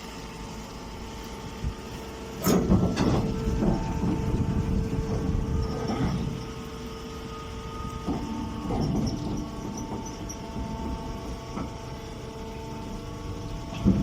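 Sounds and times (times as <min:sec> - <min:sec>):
baler mechanical hum: 0:00.0 - 0:14.0
machine rattles: 0:08.0 - 0:12.0.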